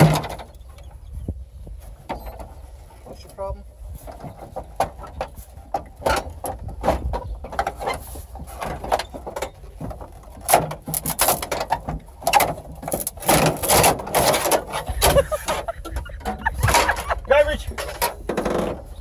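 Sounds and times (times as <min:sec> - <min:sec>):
plastic parts clicking and knocking: 0:08.6 - 0:18.9.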